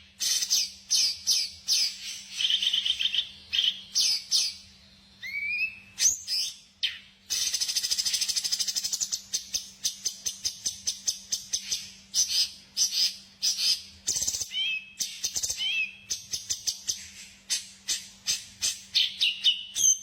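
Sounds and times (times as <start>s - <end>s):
songbird chirping: 0.0s - 20.0s
bird whistles: 5.2s - 20.0s.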